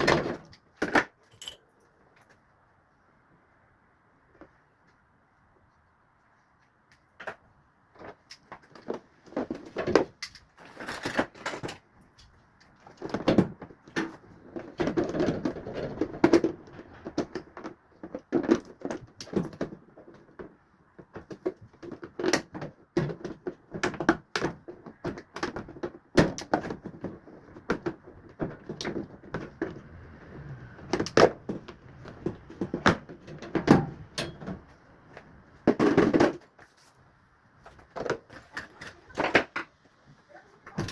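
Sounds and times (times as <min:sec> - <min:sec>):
washing machine parts knocking and clattering: 0:32.2 - 0:34.7.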